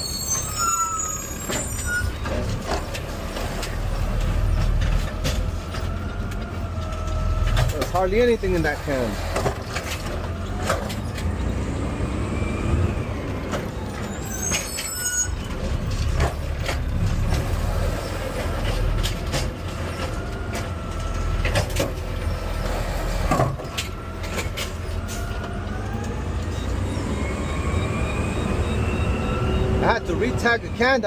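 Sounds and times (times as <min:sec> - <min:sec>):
high-pitched squeal: 0:00.0 - 0:09.8, 0:10.4 - 0:16.1, 0:19.8 - 0:30.9
garbage truck engine rumble: 0:00.0 - 0:30.8
knocks and clatter: 0:15.4 - 0:17.6.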